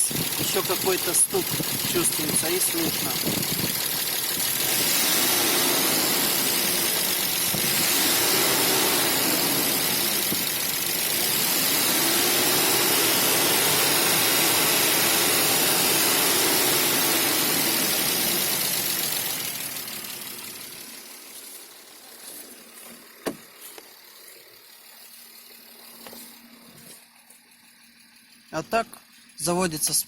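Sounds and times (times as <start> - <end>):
hydraulic lifter ticking: 0.0 - 20.3
car engine idling: 0.0 - 30.0.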